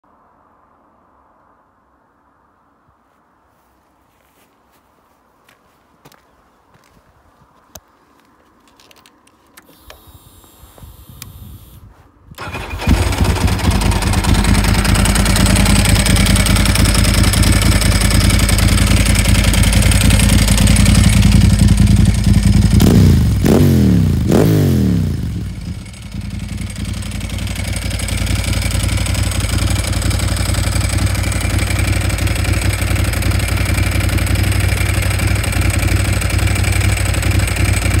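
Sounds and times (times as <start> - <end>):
motorcycle engine starter cranking: 12.4 - 17.4
engine revving: 12.4 - 26.0
motorcycle engine idling: 12.4 - 38.0.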